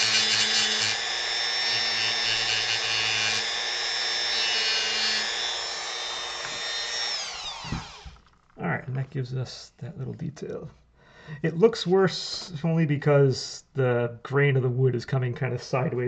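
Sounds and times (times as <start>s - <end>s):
rotary tool grinding wood: 0.0s - 8.5s.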